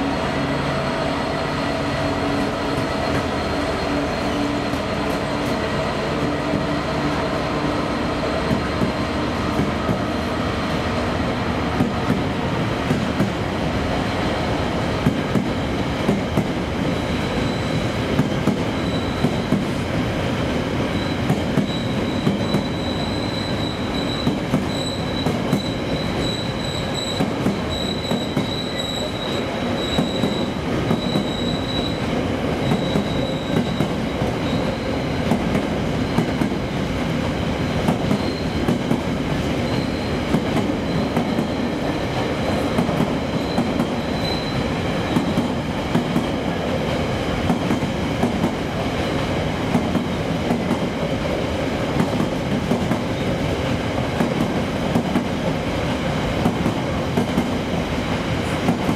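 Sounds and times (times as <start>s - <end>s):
train wheels rumbling on rail: 0.0s - 58.9s
high-pitched wheel squeal: 17.2s - 17.8s, 18.8s - 19.6s, 21.0s - 35.0s, 38.2s - 38.6s, 39.6s - 40.2s, 43.3s - 44.7s.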